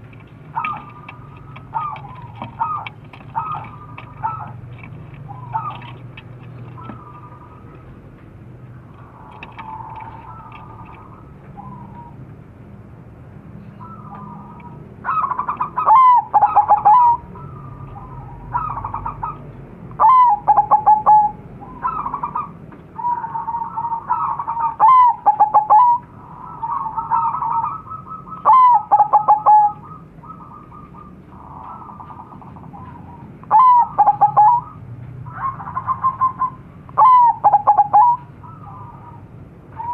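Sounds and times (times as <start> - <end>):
doves cooing: 0.0 - 12.4, 13.6 - 39.9.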